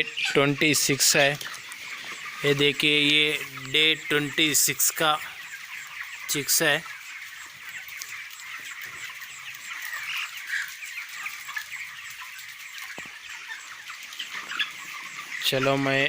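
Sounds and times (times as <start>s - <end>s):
chicks peeping and chirping: 0.0s - 16.0s.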